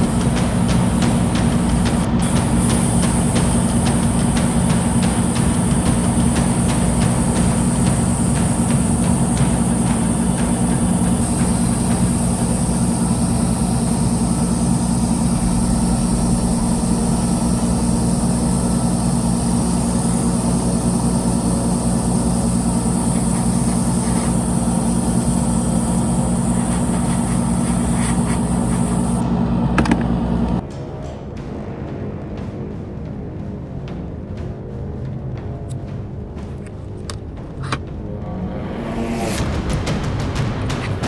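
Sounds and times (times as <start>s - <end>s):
high hiss: 0.0s - 29.2s
low mechanical drone: 0.0s - 30.7s, 37.8s - 41.0s.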